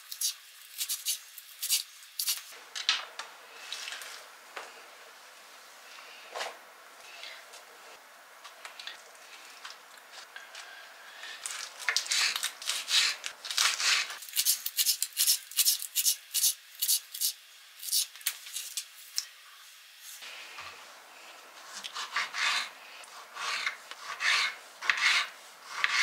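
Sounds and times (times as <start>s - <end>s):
sharp scratchy scraping strokes: 12.0s - 17.3s, 21.6s - 26.0s.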